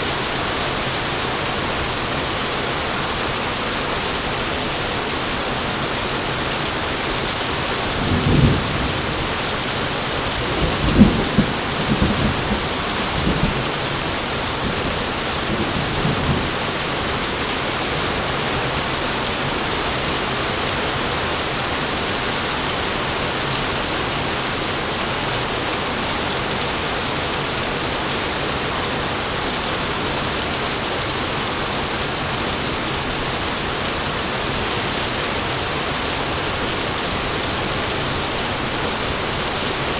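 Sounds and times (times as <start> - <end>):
heavy rain falling: 0.0 - 39.9
thunder rumbling: 7.8 - 16.6.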